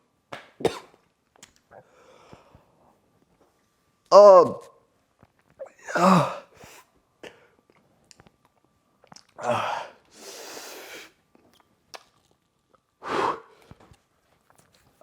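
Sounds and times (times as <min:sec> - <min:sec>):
hissing breath: 0:09.7 - 0:11.2, 0:13.0 - 0:13.8.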